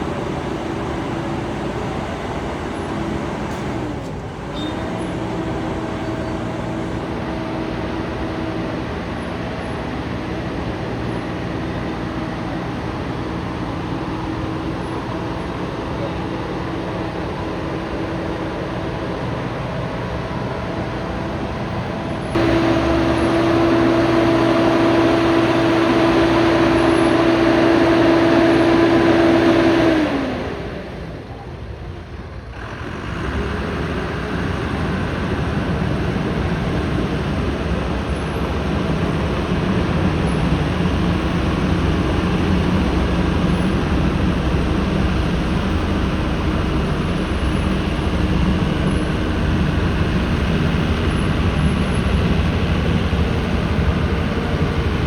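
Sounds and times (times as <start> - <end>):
low rough engine running: 0.0 - 55.0
high-pitched engine tone: 22.3 - 31.2, 33.0 - 55.0.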